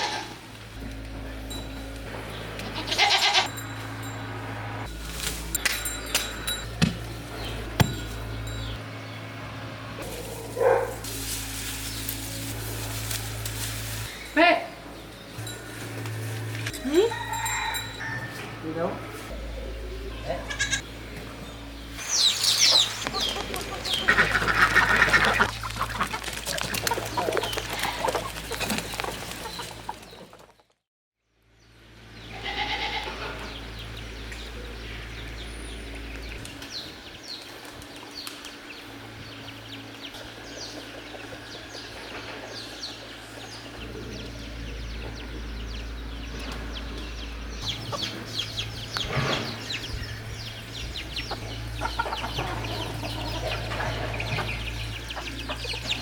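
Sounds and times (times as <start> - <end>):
farmyard animal sounds: 0.0 - 30.7, 31.9 - 56.0
chickens clucking: 19.1 - 30.5, 37.6 - 56.0.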